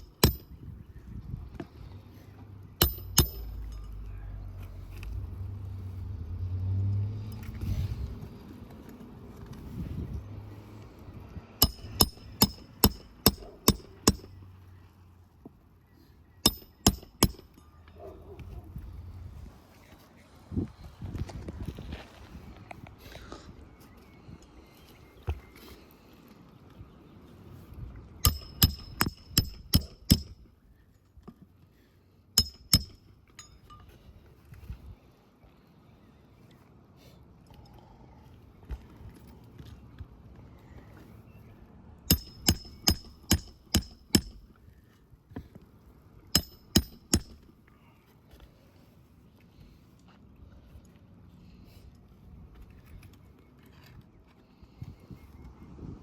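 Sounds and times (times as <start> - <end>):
hammer striking roofing nails: 0.0 - 0.4, 2.8 - 3.7, 11.6 - 14.3, 16.4 - 17.6, 28.2 - 30.4, 32.4 - 33.0, 42.1 - 44.4, 46.4 - 47.4.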